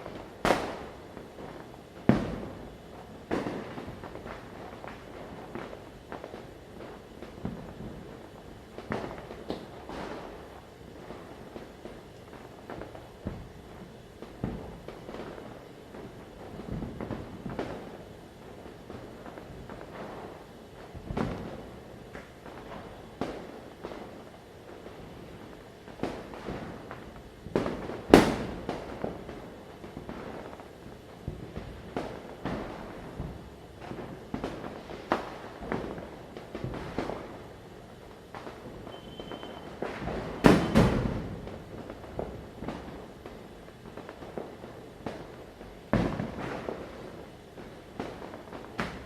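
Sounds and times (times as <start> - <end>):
background crackle: 0.0 - 49.0
firecrackers bursting: 0.0 - 49.0
thin whistle-like tone: 38.8 - 39.8.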